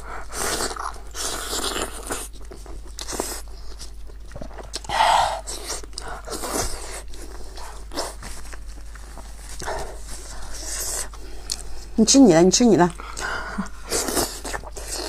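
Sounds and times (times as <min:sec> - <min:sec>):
wet smacking while chewing: 0:00.5 - 0:11.9.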